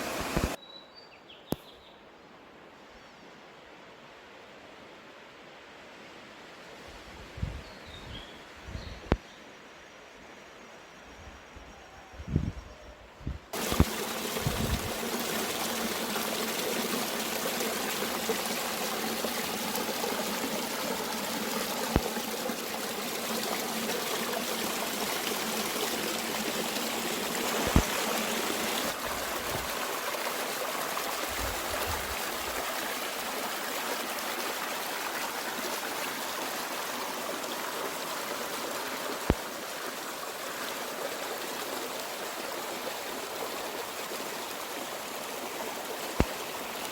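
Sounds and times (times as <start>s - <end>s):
stream flowing: 0.0s - 0.6s, 13.6s - 46.9s.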